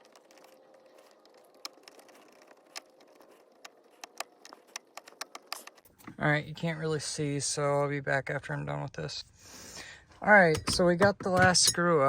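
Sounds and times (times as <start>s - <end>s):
screwdriver clicking: 10.5s - 11.8s.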